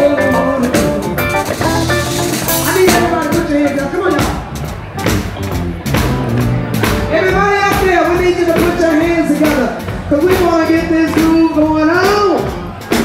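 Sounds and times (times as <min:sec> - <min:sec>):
woman singing with vibrato: 0:00.0 - 0:04.1
blues band playing: 0:00.0 - 0:13.0.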